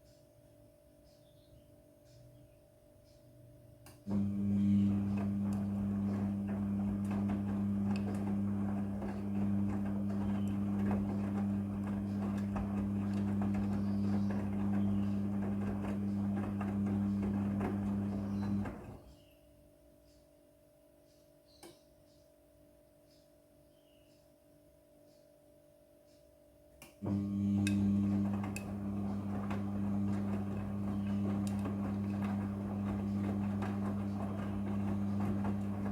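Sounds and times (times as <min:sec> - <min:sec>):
washing machine hum: 0:04.0 - 0:19.2, 0:27.0 - 0:35.9.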